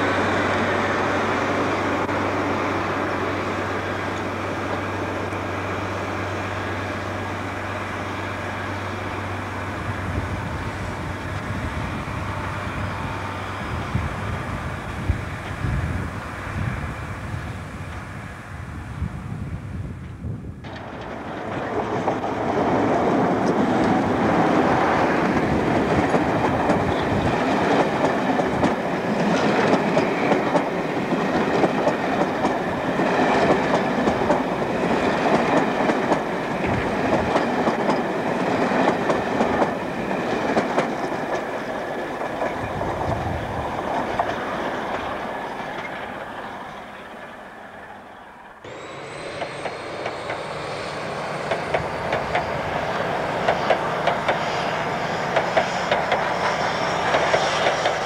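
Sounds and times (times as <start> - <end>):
diesel train passing close: 0.0 - 58.0
distant train passing: 0.0 - 58.0
wheels clicking over rail joints: 20.0 - 47.4, 51.5 - 54.6, 55.3 - 58.0.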